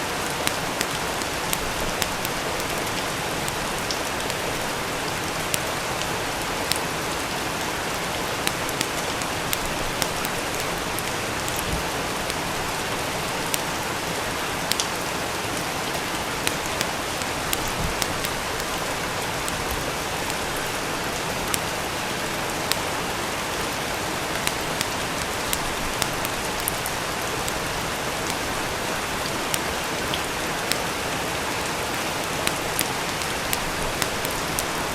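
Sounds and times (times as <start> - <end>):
rain falling: 0.0 - 34.9
sharp crackles: 24.2 - 34.9.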